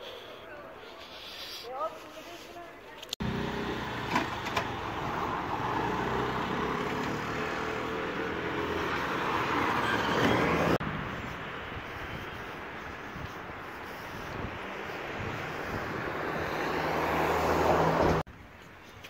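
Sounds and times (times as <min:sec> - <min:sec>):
outdoor traffic noise: 0:00.0 - 0:19.0
vehicle engine running: 0:03.2 - 0:08.9.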